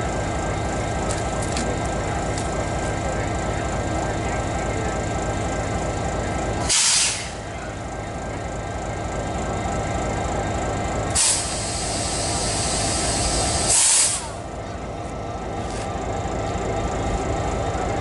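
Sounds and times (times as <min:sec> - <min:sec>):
diesel locomotive rumbling: 0:00.0 - 0:18.0
air brakes hissing: 0:06.6 - 0:07.5, 0:11.1 - 0:14.4.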